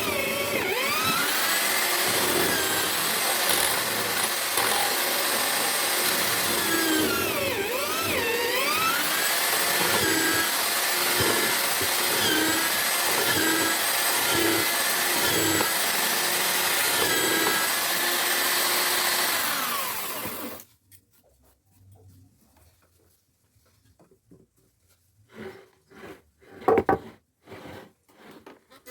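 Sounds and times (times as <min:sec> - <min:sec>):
drill motor boring into wood: 0:00.0 - 0:20.6.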